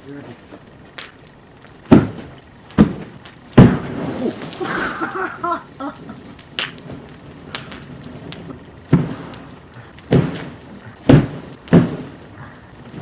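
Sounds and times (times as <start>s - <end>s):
pops and crackle: 0.0s - 13.0s
loud sharp bangs: 1.8s - 5.2s, 8.8s - 13.0s.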